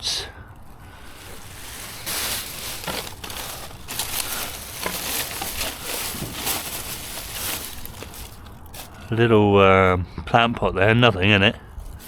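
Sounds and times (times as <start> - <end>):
plastic bag crinkling: 0.7 - 9.1.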